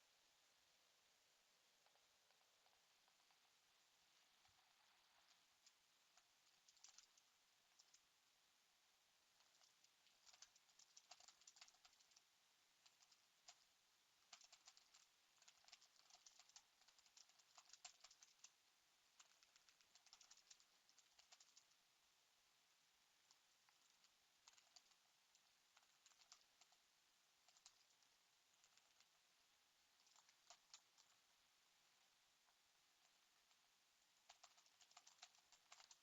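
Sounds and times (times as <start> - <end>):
typing on computer keyboard: 4.4 - 8.0, 9.4 - 12.2, 12.8 - 13.6, 14.2 - 18.6, 19.2 - 21.8, 23.3 - 26.8, 27.4 - 29.1, 30.0 - 31.2, 34.3 - 36.0.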